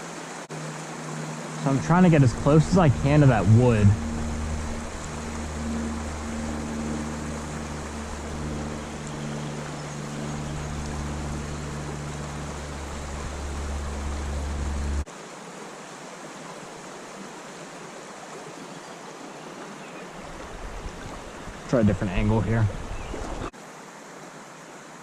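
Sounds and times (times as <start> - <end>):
creek water rushing: 0.0 - 25.0
low rumble: 1.8 - 15.0.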